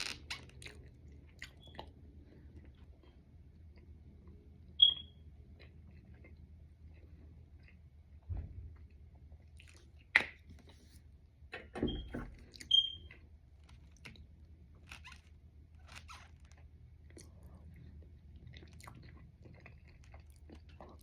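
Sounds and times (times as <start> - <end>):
biting and chewing: 12.4 - 21.0
mouth clicks and crunches: 13.6 - 17.4, 18.4 - 21.0.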